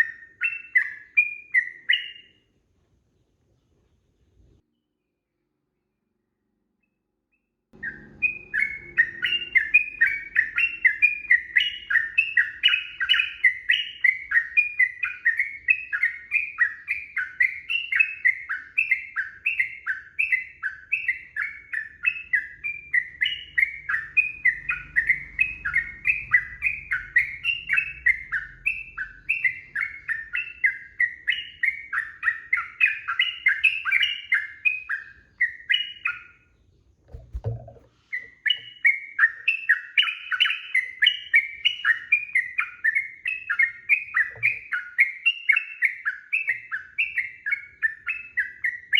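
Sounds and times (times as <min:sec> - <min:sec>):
bird song bubbly notes: 0:07.8 - 0:48.9.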